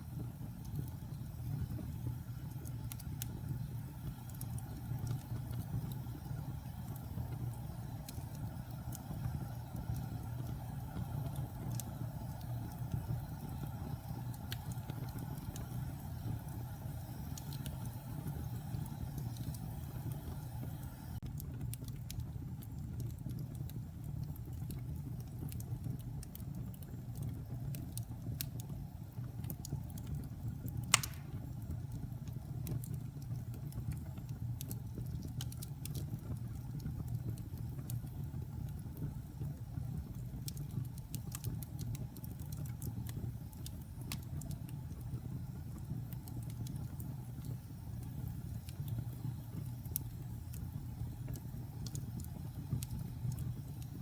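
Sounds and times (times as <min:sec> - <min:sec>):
fire flames rumbling: 0:00.0 - 0:54.0
wood fire crackling: 0:00.0 - 0:54.0
loud wood pop: 0:30.9 - 0:31.4.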